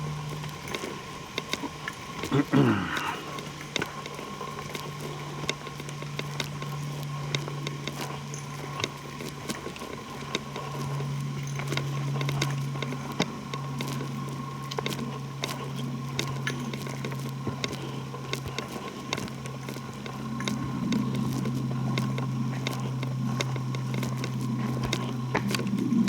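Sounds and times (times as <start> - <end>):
steady low hum: 0.0 - 26.0
footsteps on dry twigs and leaves: 12.4 - 26.0.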